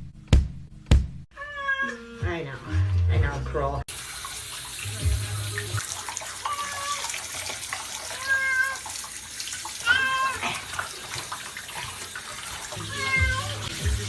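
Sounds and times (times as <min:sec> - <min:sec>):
cat meowing: 0:01.3 - 0:02.2, 0:06.4 - 0:07.2, 0:08.0 - 0:08.9, 0:09.8 - 0:10.7, 0:12.8 - 0:13.7
running tap water: 0:03.8 - 0:14.0.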